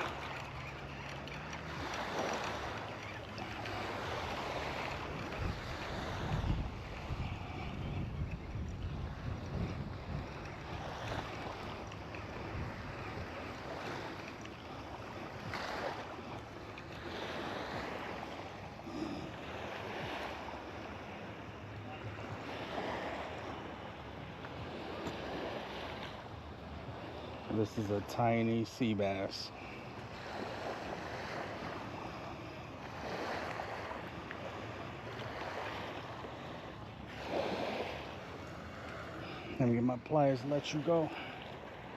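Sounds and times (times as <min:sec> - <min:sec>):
wind rumbling on microphone: 0:00.0 - 0:28.2
small waves washing ashore: 0:00.0 - 0:41.9
wind on microphone: 0:01.7 - 0:14.4.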